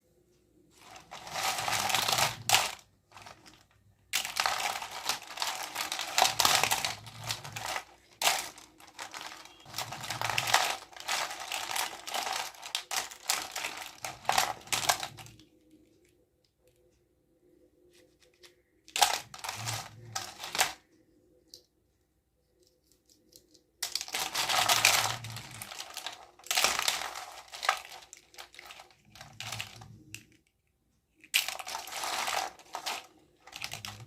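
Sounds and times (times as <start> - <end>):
plastic packaging crinkling: 0.7 - 15.4, 18.3 - 20.8, 23.8 - 30.4, 31.2 - 34.0.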